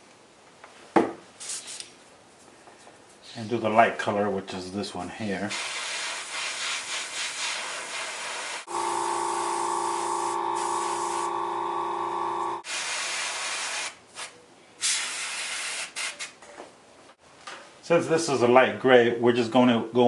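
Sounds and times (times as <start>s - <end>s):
airbrush hissing: 5.5s - 13.9s
steady hum: 8.7s - 12.6s.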